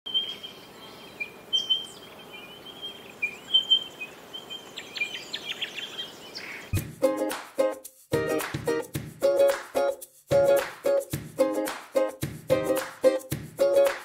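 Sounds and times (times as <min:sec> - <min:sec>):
birds chirping: 0:00.1 - 0:06.8
outdoor background hiss: 0:00.1 - 0:14.0.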